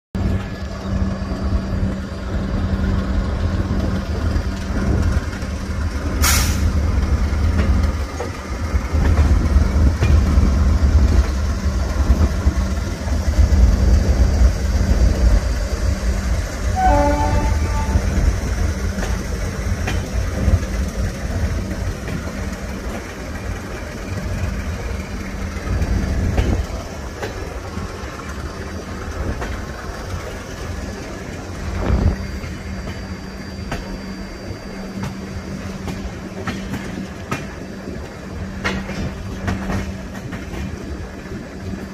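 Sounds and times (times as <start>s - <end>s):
train wheels rumbling on track: 0.2s - 41.9s
train horn note: 16.7s - 18.3s.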